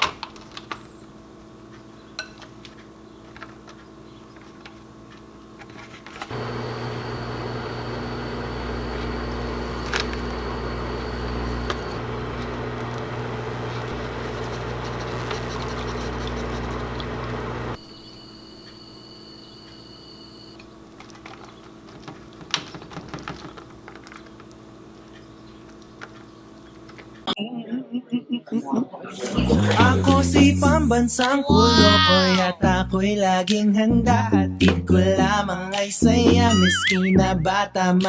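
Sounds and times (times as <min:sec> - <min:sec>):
electrical appliance humming: 0:00.0 - 0:27.4
faint high whine: 0:06.3 - 0:20.6.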